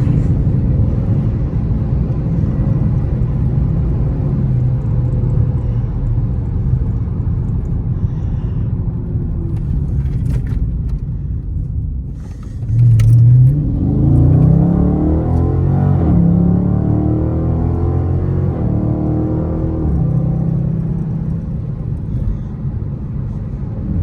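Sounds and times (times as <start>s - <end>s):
car engine running low: 0.0s - 24.0s.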